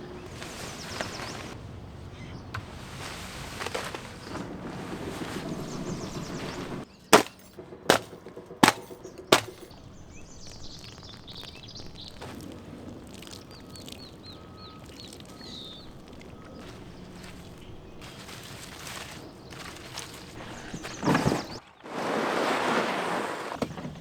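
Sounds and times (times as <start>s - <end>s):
birds chirping faintly: 0.0s - 21.8s
sharp knocks: 7.2s - 9.8s.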